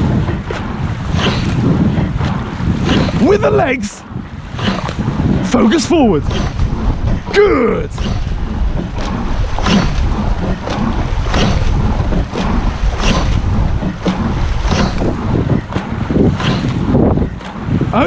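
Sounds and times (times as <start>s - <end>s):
oars and rigging knocking: 0.0s - 18.0s
water rushing: 0.0s - 18.0s
wind buffeting microphone: 0.0s - 18.0s.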